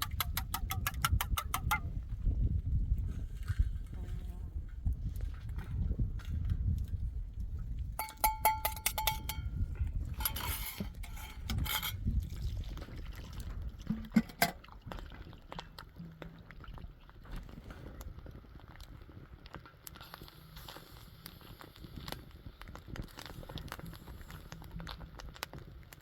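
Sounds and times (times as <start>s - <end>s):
metallic clinks: 8.0s - 9.6s.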